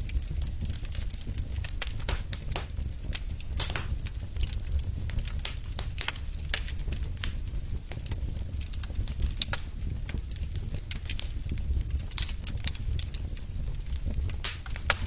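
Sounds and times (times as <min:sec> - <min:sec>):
low rumble of flames: 0:00.0 - 0:15.0
wood fire crackling: 0:00.0 - 0:15.0.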